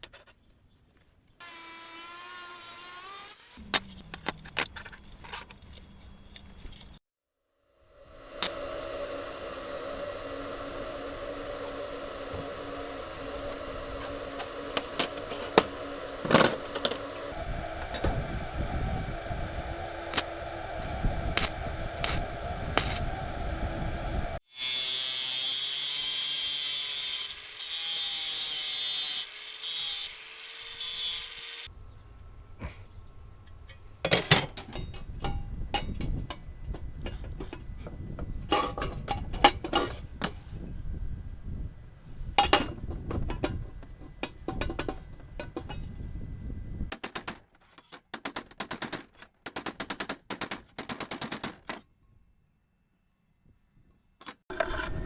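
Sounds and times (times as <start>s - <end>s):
power tool humming: 1.4s - 4.3s, 8.0s - 31.7s
cutting hiss: 8.0s - 24.4s
metal parts clattering: 14.0s - 17.1s, 38.5s - 40.4s, 42.4s - 45.9s, 46.9s - 51.8s.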